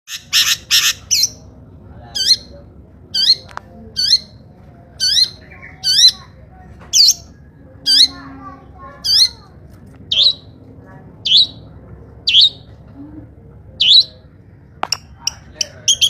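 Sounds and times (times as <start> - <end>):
bird shrill screeching calls: 0.1 - 1.4.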